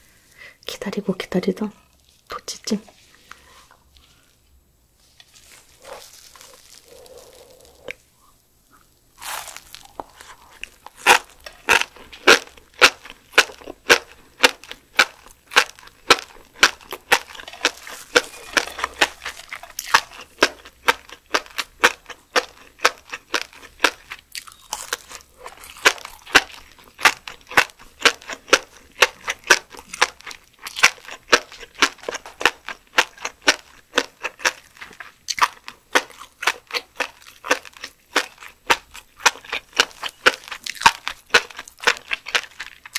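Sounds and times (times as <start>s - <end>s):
soft tearing: 5.0s - 8.0s, 8.7s - 11.7s
crisp crunching while chewing: 5.0s - 8.1s, 8.7s - 42.9s.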